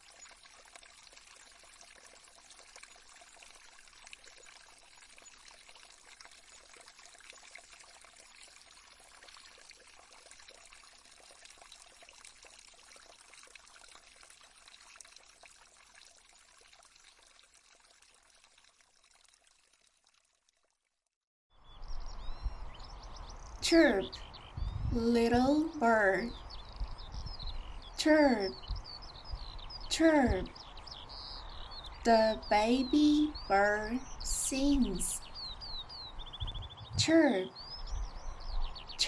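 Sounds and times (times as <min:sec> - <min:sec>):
stream water babbling: 0:00.0 - 0:20.0.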